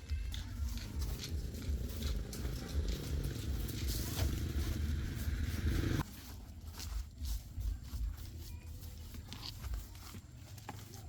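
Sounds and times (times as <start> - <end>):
motor pulsing rumble: 0.6 - 6.0.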